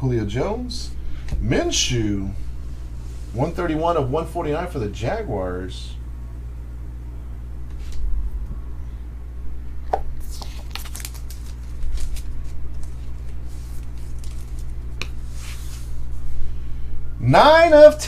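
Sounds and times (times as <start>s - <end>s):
card packaging rustling and crinkling: 10.2s - 16.0s.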